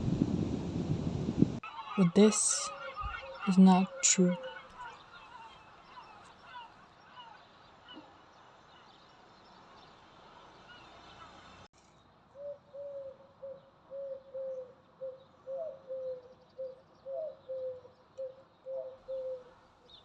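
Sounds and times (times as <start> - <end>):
bird hooting: 12.4 - 19.6.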